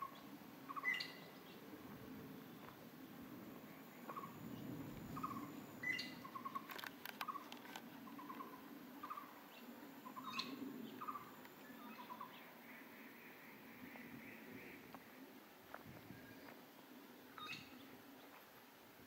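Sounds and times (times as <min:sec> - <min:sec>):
sharp clicks: 0:06.5 - 0:07.9.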